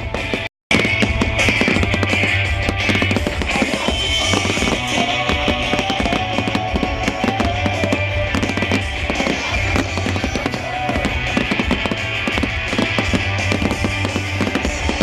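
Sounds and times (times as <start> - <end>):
fireworks crackling and popping: 0.0 - 15.0
music playing: 0.0 - 15.0.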